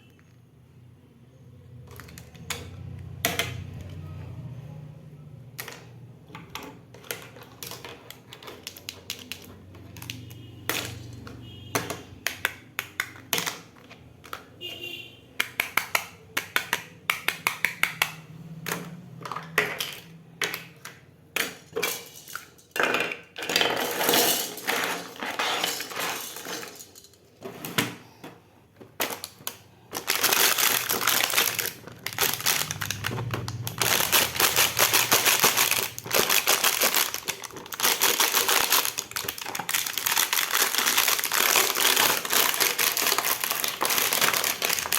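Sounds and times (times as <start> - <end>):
plastic toy pieces clicking: 5.4 - 14.6, 15.4 - 27.2, 28.9 - 44.9
packaging crinkling: 28.9 - 44.9.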